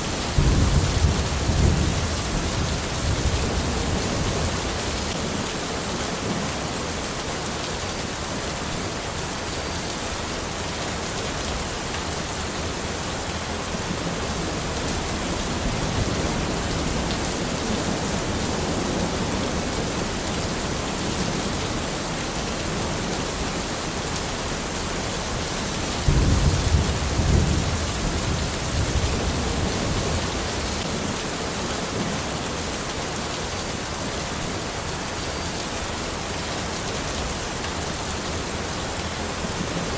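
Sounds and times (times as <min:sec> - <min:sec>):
rain falling in forest: 0:00.0 - 0:39.9
thunder rumbling: 0:00.3 - 0:04.6, 0:26.0 - 0:30.3.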